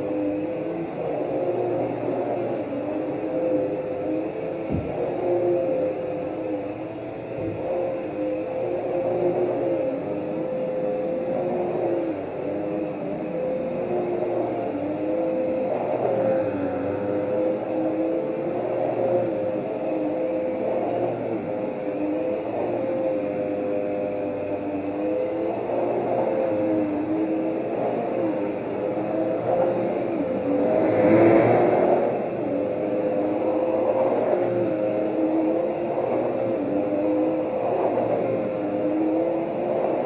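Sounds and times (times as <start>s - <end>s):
vacuum cleaner running: 0.0s - 40.0s.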